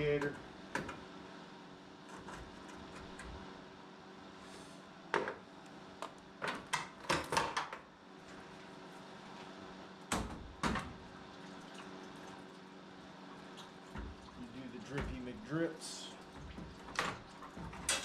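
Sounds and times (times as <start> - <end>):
knocks and clatters of radiator: 10.1 - 11.0, 13.9 - 15.4, 16.2 - 18.0.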